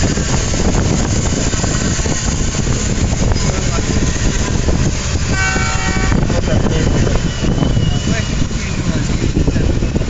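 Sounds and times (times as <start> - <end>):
train rumbling and rattling: 0.0 - 10.0.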